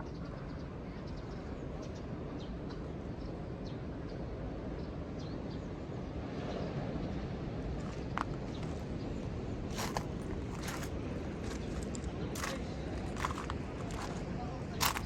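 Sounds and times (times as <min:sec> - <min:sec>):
ocean surf rumble: 0:05.9 - 0:15.0.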